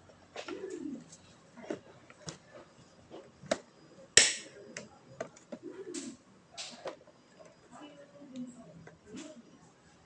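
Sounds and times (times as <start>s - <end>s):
sharp loud clack: 4.2s - 4.5s.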